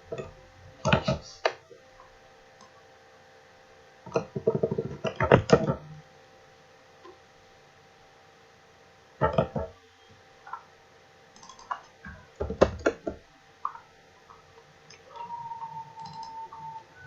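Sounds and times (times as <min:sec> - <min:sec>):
faint electrical hum: 0:00.0 - 0:17.0
mouse and keyboard clicks: 0:11.4 - 0:13.0, 0:16.0 - 0:16.4.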